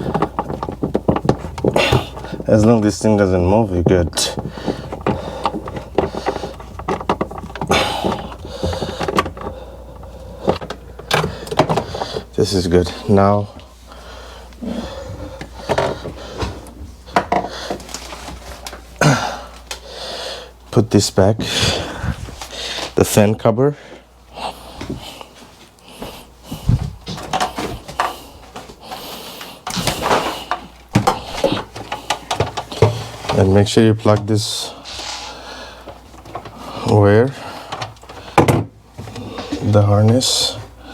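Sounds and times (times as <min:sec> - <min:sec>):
clicks and knocks of parts: 0:00.0 - 0:02.9, 0:03.8 - 0:12.4, 0:27.1 - 0:34.4, 0:35.8 - 0:37.0, 0:37.6 - 0:40.7
steady low hum: 0:00.0 - 0:40.9.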